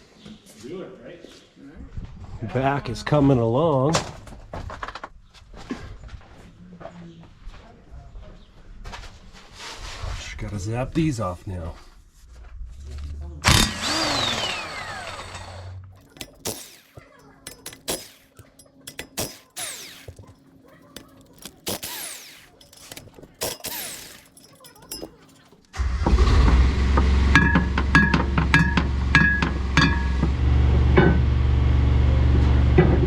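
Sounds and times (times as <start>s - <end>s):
motor droning: 13.0s - 20.4s, 21.0s - 24.4s, 25.8s - 33.0s
power tool whining bursts: 13.4s - 20.4s, 21.0s - 25.1s
metal clicks and knocks: 15.9s - 25.7s.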